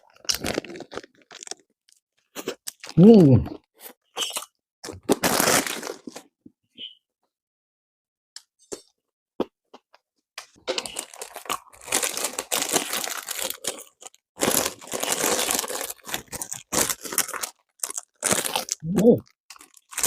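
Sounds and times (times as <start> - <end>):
crunching bread being chewed: 0.0 - 3.0, 10.7 - 20.0.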